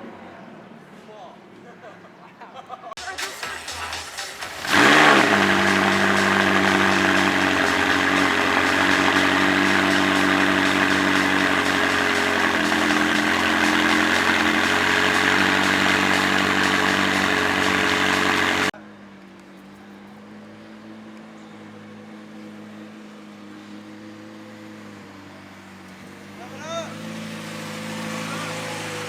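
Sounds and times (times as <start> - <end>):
car engine idling: 3.0 - 18.7
quiet steady engine hum: 4.4 - 18.7.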